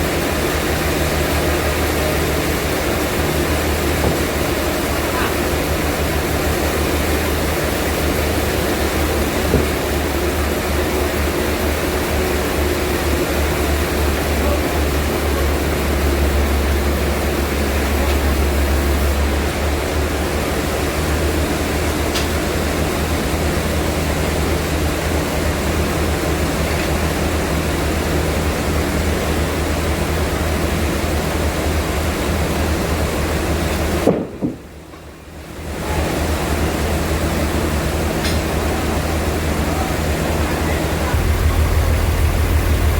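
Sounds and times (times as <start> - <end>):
sawmill machinery rushing: 0.0 - 34.1, 35.6 - 42.9
deep constant hum: 38.1 - 42.9.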